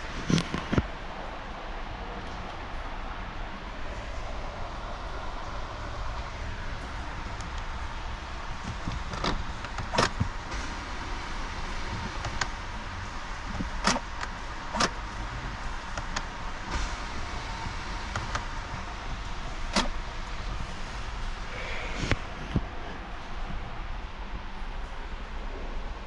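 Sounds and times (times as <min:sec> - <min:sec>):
sharp clicks and knocks: 0:08.6 - 0:10.8, 0:11.7 - 0:12.7, 0:13.4 - 0:17.0, 0:17.6 - 0:20.0.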